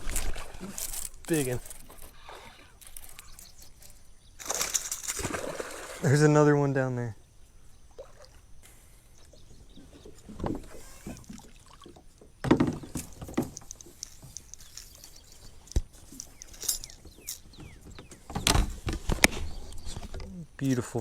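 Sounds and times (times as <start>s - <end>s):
small water splashes: 4.4s - 6.3s, 7.9s - 8.5s, 10.0s - 13.4s
knocks and thumps in kayak: 9.4s - 14.4s, 16.9s - 20.4s.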